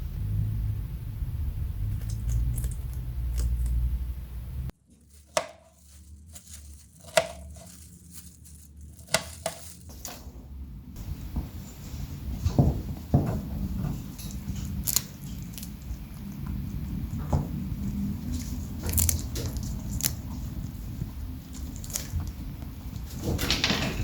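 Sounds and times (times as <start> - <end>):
low rumble: 0.0 - 4.8, 5.8 - 23.2
rabbit crunching bites: 1.6 - 10.2, 13.2 - 23.7.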